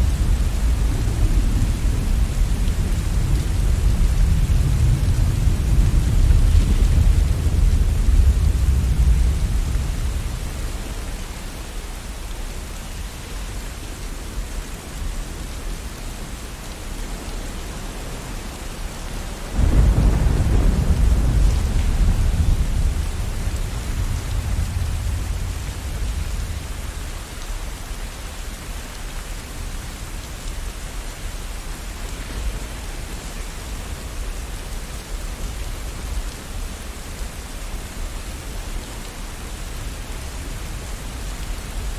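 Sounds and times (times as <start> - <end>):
thunder rumbling: 0.0 - 11.0, 19.4 - 27.1
steady rain: 0.0 - 41.9.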